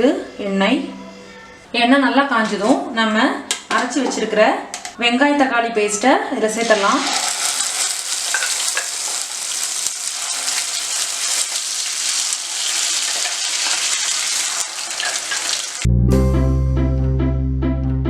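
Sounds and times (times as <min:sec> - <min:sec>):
paste sizzling in hot oil: 0:06.6 - 0:15.9
plucked-string music: 0:15.8 - 0:18.0.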